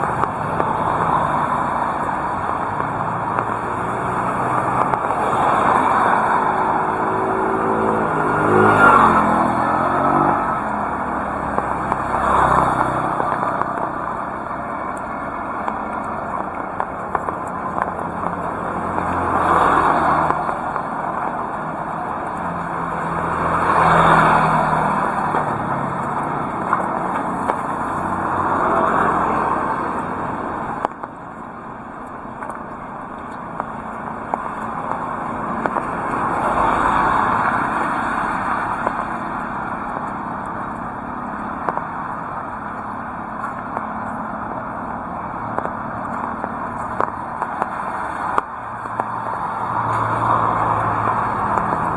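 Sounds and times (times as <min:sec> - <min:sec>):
heavy rain hissing: 0:00.0 - 0:30.8, 0:32.6 - 0:51.9
vehicles passing on wet road: 0:00.0 - 0:51.9.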